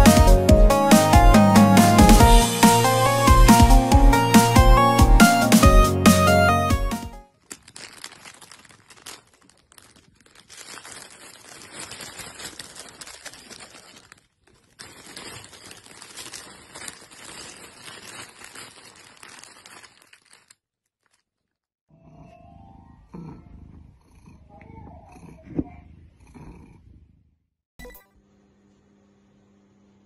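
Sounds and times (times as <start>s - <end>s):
crinkling rustling: 7.3s - 21.6s.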